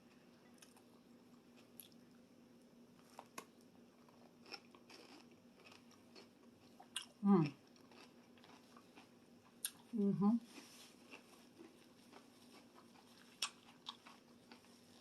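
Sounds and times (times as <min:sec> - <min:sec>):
faint steady hum: 0:00.0 - 0:15.0
person chewing: 0:03.0 - 0:15.0.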